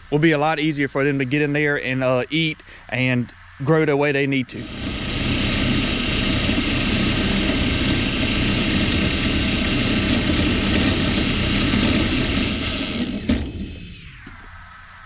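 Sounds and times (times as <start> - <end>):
winch stopping clunk: 4.5 - 14.4
motor-driven winch running: 4.5 - 14.5.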